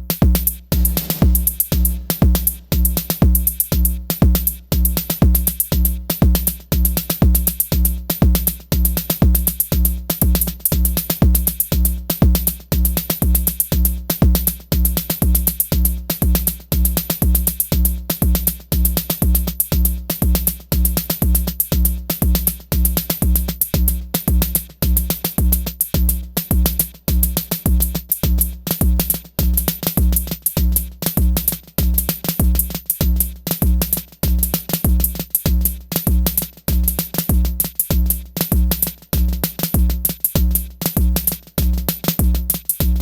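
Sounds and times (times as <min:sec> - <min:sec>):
sustained pitched drum tone: 0:00.0 - 0:04.4
deep kick drum: 0:00.0 - 0:43.0
electronic drum pattern: 0:00.0 - 0:43.0
fast hi-hat ticks: 0:00.0 - 0:43.0.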